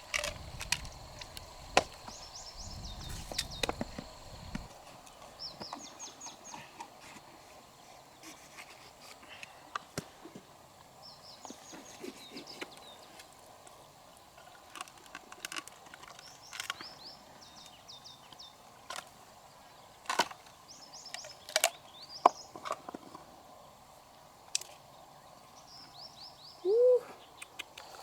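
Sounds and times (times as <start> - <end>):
steady low hiss: 0.0 - 28.0
high falling bird chirps: 0.4 - 4.7
clicks and knocks of hard objects: 20.1 - 20.5.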